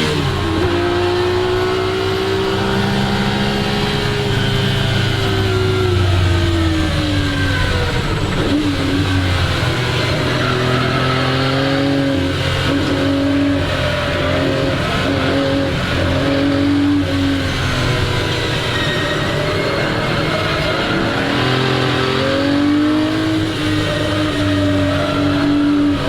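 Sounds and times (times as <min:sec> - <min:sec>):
race car engine revving: 0:00.0 - 0:26.0.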